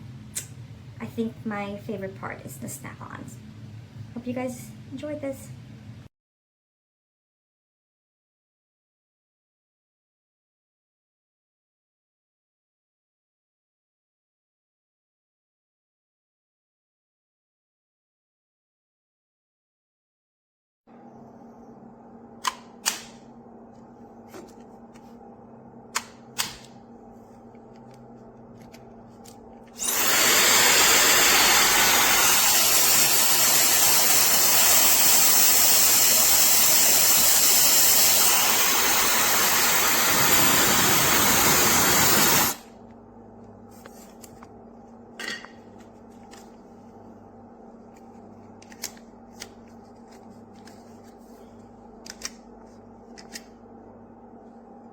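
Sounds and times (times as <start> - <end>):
hair dryer blowing: 29.8 - 42.6.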